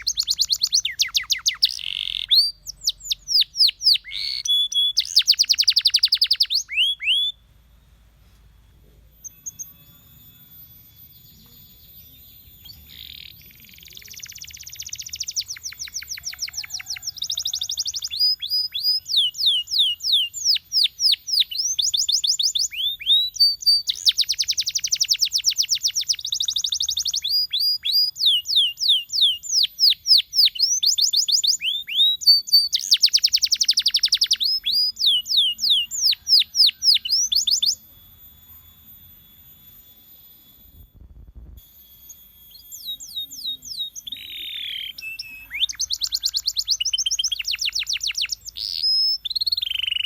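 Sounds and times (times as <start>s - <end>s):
canary singing: 0.0s - 7.6s, 9.0s - 41.3s, 42.0s - 50.0s.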